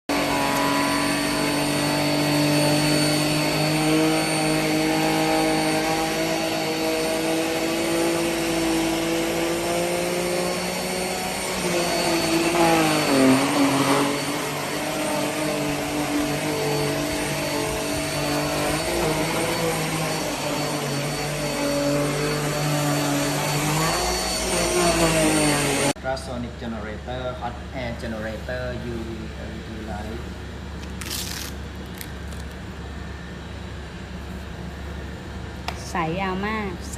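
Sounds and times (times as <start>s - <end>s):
vacuum cleaner running: 0.0s - 26.1s.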